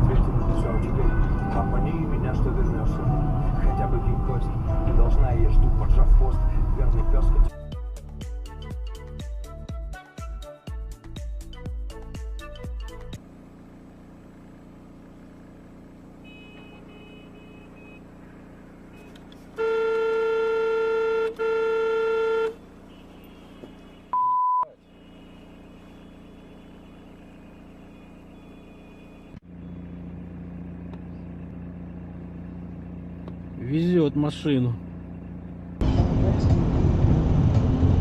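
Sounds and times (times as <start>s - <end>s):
vehicle and road hum: 0.0s - 7.6s, 11.5s - 38.0s
car horn honking: 16.1s - 29.9s
short single-pitch beep: 16.3s - 18.1s, 24.1s - 25.4s.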